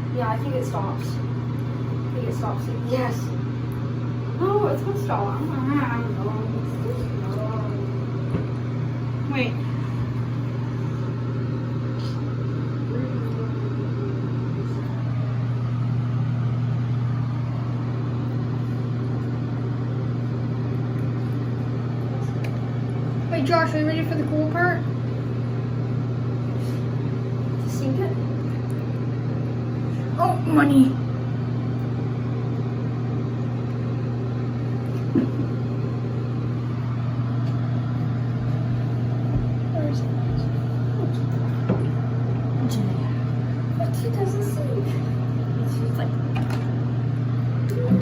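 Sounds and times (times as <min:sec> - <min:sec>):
low motor hum: 0:00.0 - 0:48.0.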